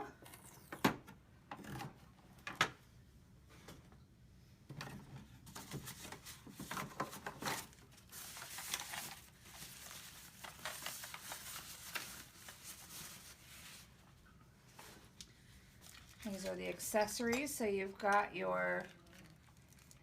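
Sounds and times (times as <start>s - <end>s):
packaging rustling and crinkling: 5.5s - 14.0s, 18.8s - 20.0s
wrapping tearing: 7.6s - 13.9s, 18.8s - 20.0s.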